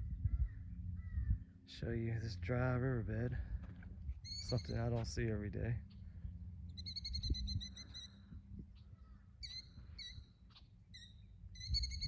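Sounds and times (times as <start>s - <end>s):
low wind rumble: 0.0s - 12.0s
bird trilling: 4.2s - 4.9s, 5.9s - 12.0s.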